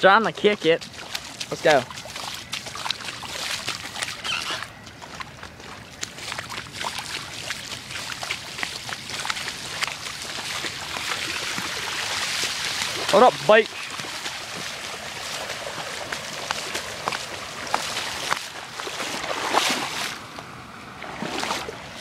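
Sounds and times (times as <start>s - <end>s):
moving water: 0.0s - 22.0s
feet sloshing through water: 0.2s - 22.0s.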